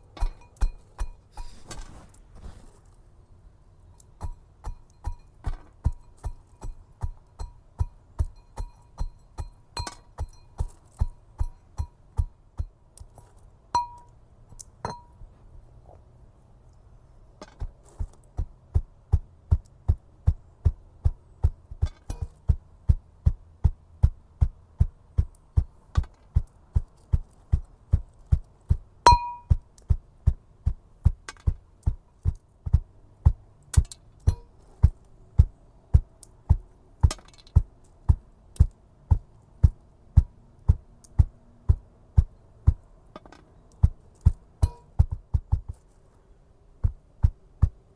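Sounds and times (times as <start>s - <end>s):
bright metallic ping: 13.8s - 14.1s, 29.1s - 29.5s.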